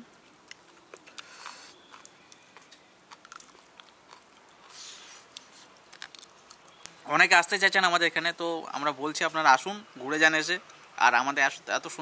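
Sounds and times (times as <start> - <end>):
person chewing: 0.3 - 6.8
short hissy breaths: 4.7 - 5.7.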